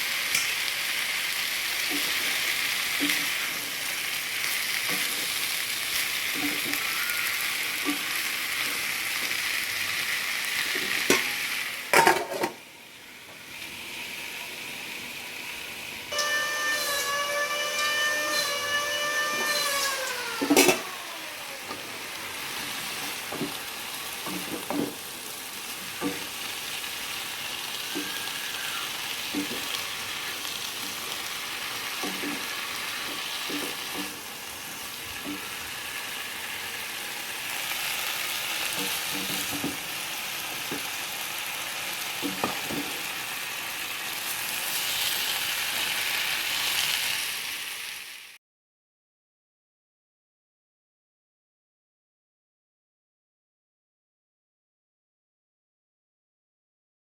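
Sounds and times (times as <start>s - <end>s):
food sizzling in a pan: 0.0s - 48.4s
whistle-like tone: 16.1s - 20.2s
spatula scraping a pan: 16.2s - 20.9s.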